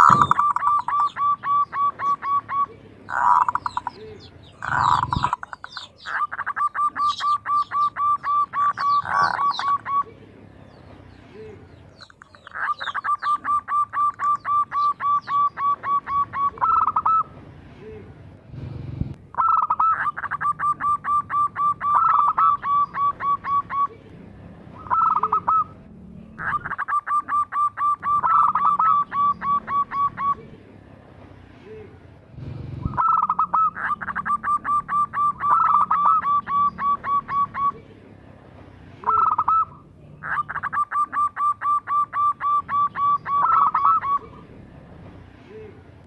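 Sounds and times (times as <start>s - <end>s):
dove staccato calls: 0.0s - 10.1s, 10.7s - 17.4s, 19.3s - 24.0s, 24.8s - 25.8s, 26.4s - 30.5s, 32.8s - 37.8s, 39.0s - 44.5s.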